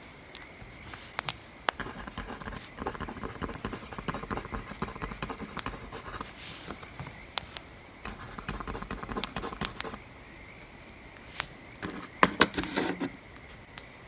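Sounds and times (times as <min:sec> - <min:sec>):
pencil writing on paper: 0:01.7 - 0:07.1, 0:08.1 - 0:10.0, 0:11.8 - 0:13.1.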